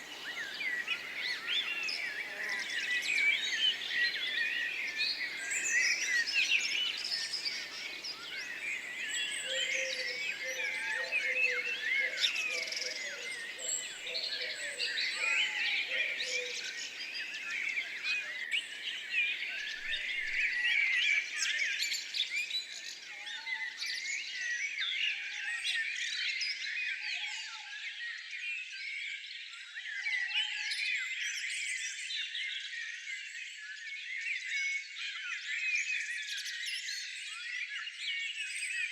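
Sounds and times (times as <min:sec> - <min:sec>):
small birds chirping: 0:00.0 - 0:24.8.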